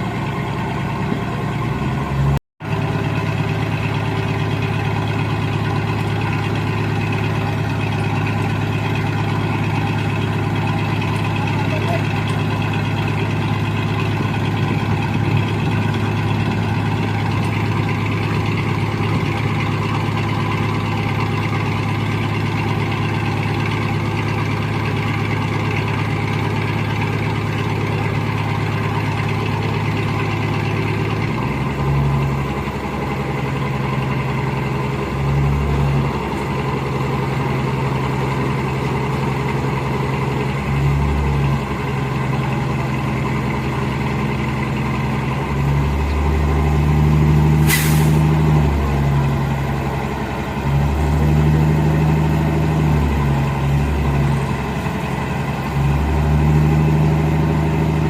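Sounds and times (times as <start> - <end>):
heavy diesel engine idling: 0.0 - 58.0.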